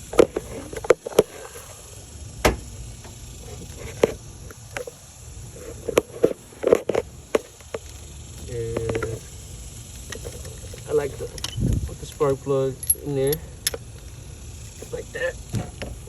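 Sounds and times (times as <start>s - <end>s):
small tools clicking and knocking: 10.0s - 14.1s.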